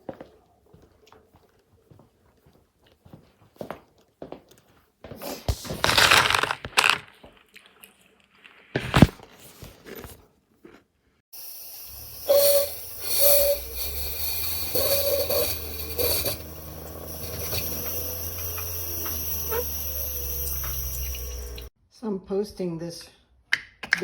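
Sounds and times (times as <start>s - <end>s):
rustling crinkling handling noise: 5.4s - 10.8s.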